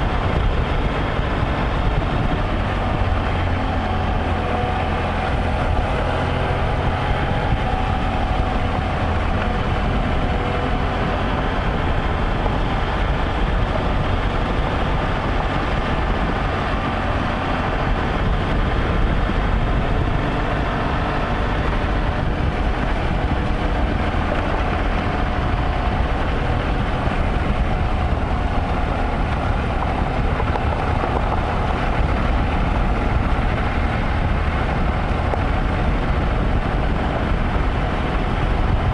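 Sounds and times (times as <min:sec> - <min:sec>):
motorcycle engine running: 0:00.0 - 0:38.9
road noise: 0:00.0 - 0:38.9
wind noise: 0:00.0 - 0:38.9.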